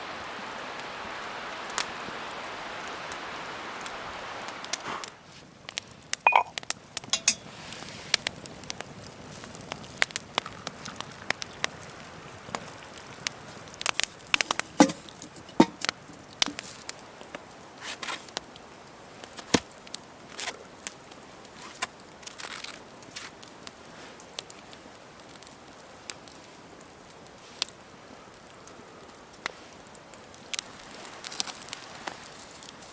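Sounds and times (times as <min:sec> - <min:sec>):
campfire crackling: 0:00.0 - 0:32.9
steady rushing hiss: 0:00.0 - 0:32.9
wood snapping and popping: 0:12.5 - 0:18.6, 0:19.2 - 0:23.5.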